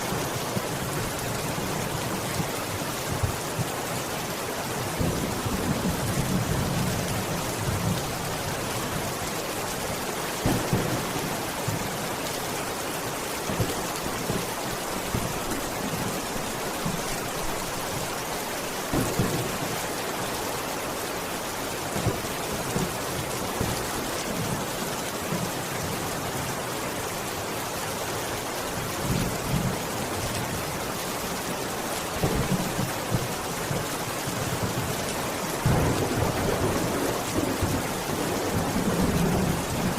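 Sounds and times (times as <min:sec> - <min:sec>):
steady rain: 0:00.0 - 0:39.9
low thunder rumbles: 0:10.4 - 0:12.0, 0:35.6 - 0:39.9.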